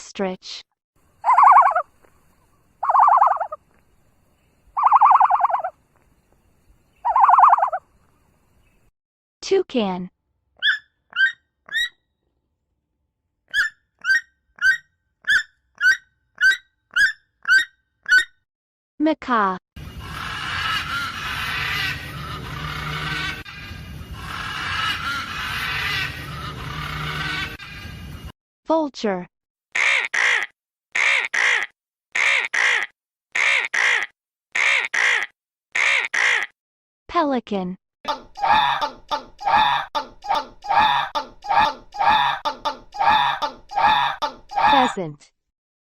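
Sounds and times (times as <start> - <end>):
toucan calling: 1.2 - 1.9, 2.8 - 3.7, 4.8 - 5.8, 7.0 - 7.8, 10.6 - 12.0, 13.5 - 18.3
harsh raspy bird calls: 1.2 - 3.6, 4.7 - 5.8, 7.0 - 7.8, 10.6 - 12.0, 13.5 - 18.3, 19.8 - 23.5, 24.1 - 27.6, 29.8 - 36.6, 38.1 - 45.0.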